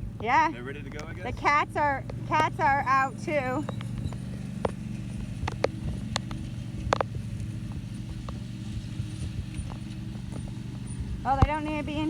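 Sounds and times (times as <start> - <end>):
engine running steadily: 0.0 - 12.0
sharp clicks: 0.9 - 1.2.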